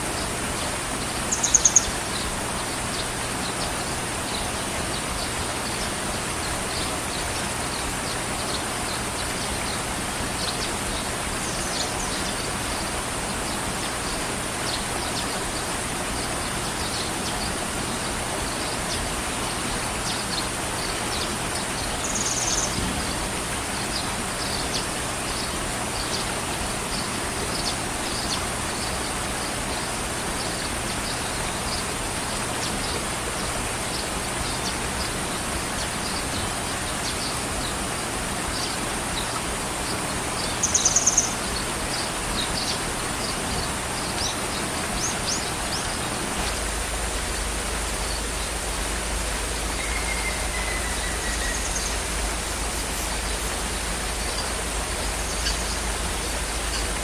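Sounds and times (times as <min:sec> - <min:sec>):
steady rain-like hiss: 0:00.0 - 0:57.0
bird chirps: 0:01.3 - 0:02.0, 0:22.0 - 0:22.9, 0:40.4 - 0:41.4, 0:49.6 - 0:57.0.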